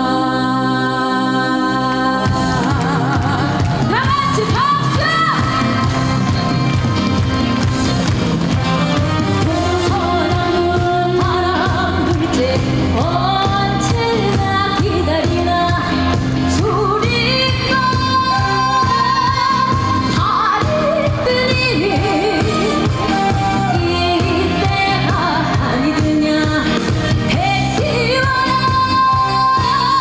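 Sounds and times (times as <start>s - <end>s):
amplified backing music: 0.0s - 30.0s
woman singing folk song: 9.4s - 30.0s.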